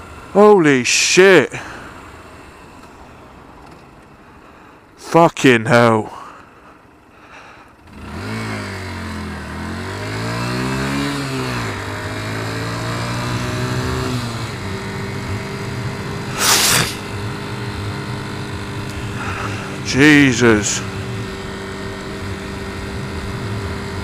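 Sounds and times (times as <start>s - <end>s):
motorcycle engine accelerating: 7.8s - 24.0s.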